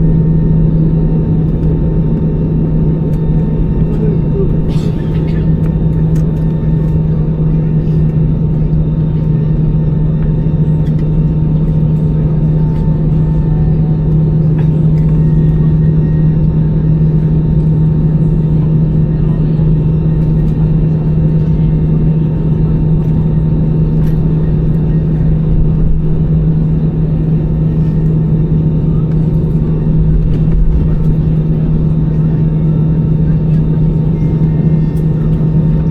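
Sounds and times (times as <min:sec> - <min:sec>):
aircraft cabin hum and rumble: 0:00.0 - 0:35.9.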